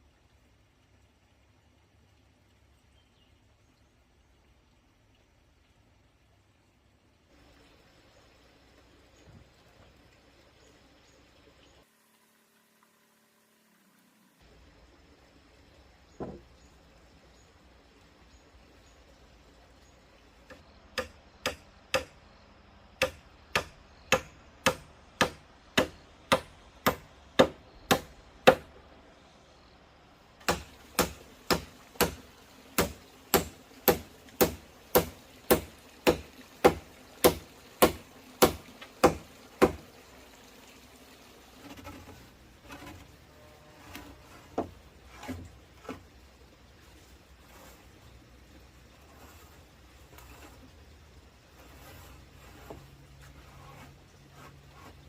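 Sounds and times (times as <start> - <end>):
soft knocks: 16.2 - 16.5
hand tool striking wood: 20.5 - 22.2, 23.0 - 28.7, 30.4 - 32.2, 32.8 - 39.8.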